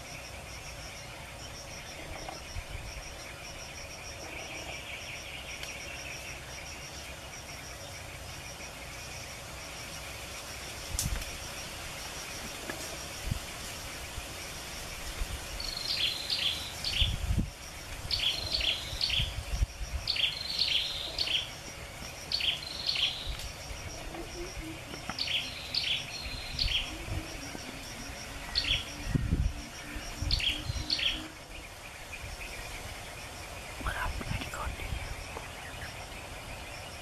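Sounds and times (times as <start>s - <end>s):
songbird chirping: 0.0s - 37.0s.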